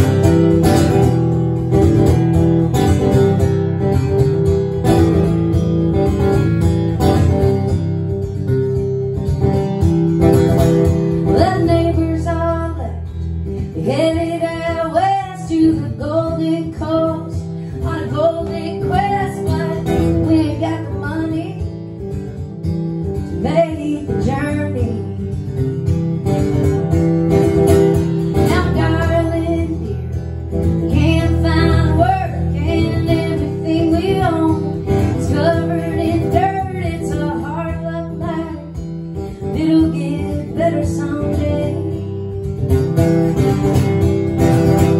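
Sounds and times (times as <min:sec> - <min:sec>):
strummed acoustic guitar: 0:00.0 - 0:44.9
woman singing: 0:10.9 - 0:21.9, 0:23.2 - 0:25.6, 0:28.0 - 0:42.6.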